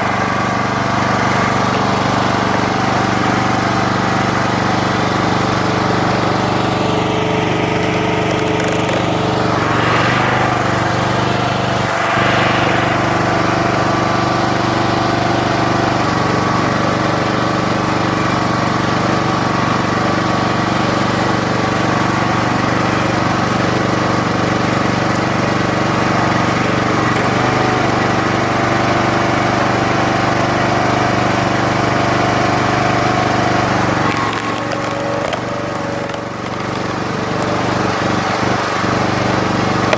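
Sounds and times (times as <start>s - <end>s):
log splitter engine running: 0.0s - 39.9s.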